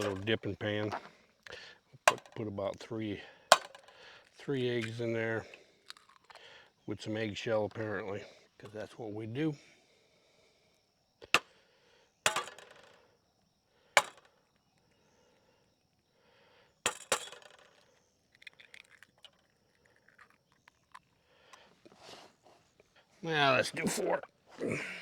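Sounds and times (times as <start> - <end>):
eggs knocking against a pan: 2.1 - 2.4, 3.5 - 3.9, 14.0 - 14.3.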